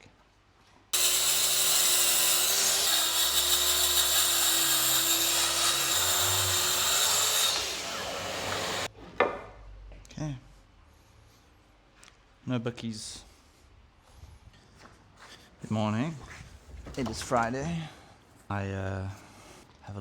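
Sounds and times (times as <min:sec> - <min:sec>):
track saw cutting wood: 0:01.0 - 0:08.9.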